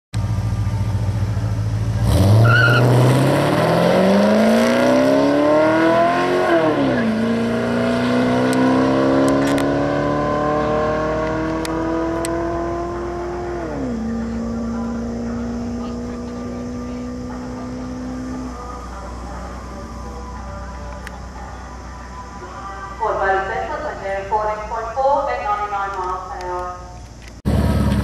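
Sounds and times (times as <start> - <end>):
car engine accelerating: 0.2 - 22.4, 27.4 - 28.0
tyre squeal: 2.3 - 3.1.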